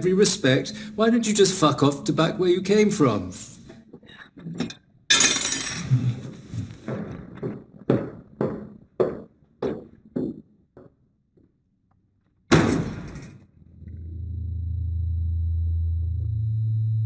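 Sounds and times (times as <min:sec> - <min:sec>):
footsteps on hard floor: 0:06.3 - 0:11.5
door slamming shut: 0:12.5 - 0:13.5.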